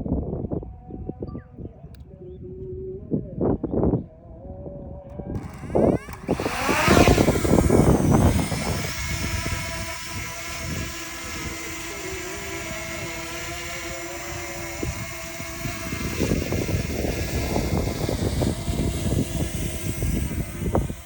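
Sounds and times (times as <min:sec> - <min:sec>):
drone motors whining: 0:05.2 - 0:21.0
wind gusts buffeting microphone: 0:05.3 - 0:21.0.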